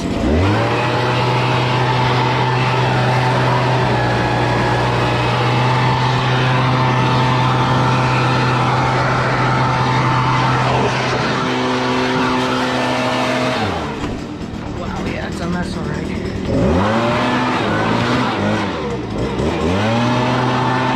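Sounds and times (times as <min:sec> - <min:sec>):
small petrol engine running: 0:00.0 - 0:20.9.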